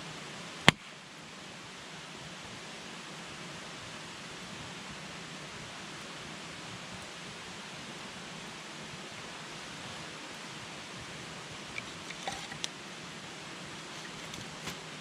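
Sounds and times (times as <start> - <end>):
campfire hissing: 0.0 - 15.0
wood crackling and popping: 11.7 - 12.8, 13.8 - 15.0.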